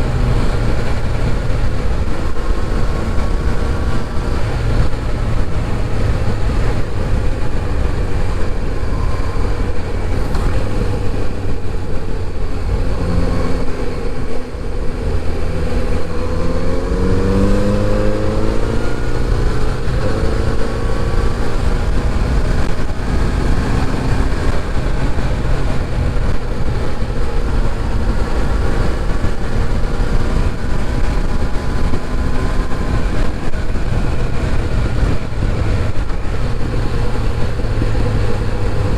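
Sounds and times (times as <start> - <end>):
motorcycle engine rumble: 0.0 - 38.9.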